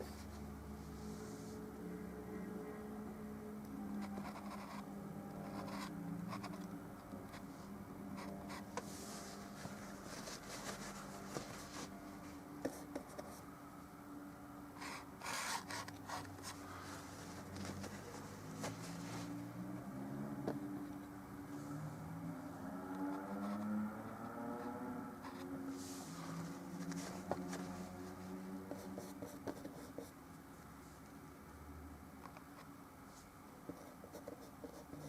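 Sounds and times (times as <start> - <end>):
faint steady hum: 0.0 - 35.0
paintbrush scratchy strokes: 7.4 - 13.4, 25.2 - 30.1.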